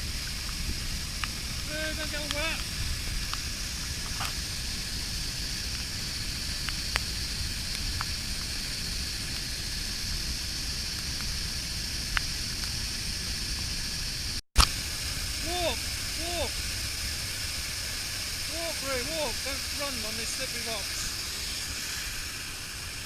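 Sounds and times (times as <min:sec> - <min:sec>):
waterfall rushing: 0:00.0 - 0:05.1, 0:14.6 - 0:23.0.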